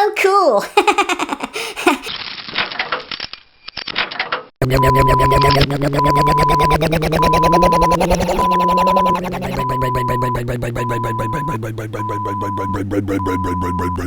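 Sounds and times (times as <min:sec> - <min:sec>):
crackling and crunching: 0:02.1 - 0:03.4
backup alarm beeping: 0:04.6 - 0:14.0
truck engine pulsing: 0:04.6 - 0:14.0.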